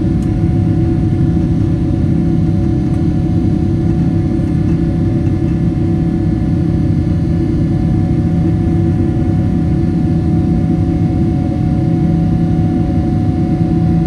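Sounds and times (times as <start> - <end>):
jet engines rumbling: 0.0 - 10.0.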